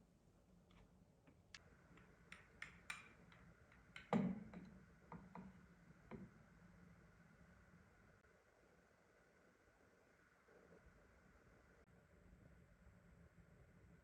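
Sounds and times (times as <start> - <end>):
light clicks and taps: 0.7 - 6.3.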